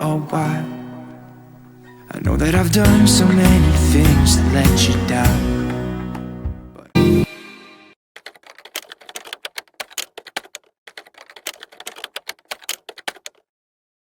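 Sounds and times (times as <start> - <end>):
rapid irregular clicking: 8.2 - 13.5.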